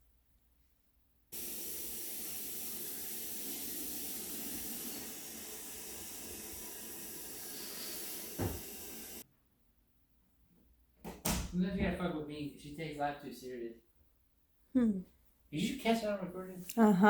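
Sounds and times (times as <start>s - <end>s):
rushing hiss of water or steam: 1.4s - 9.2s
thump: 8.4s - 8.7s.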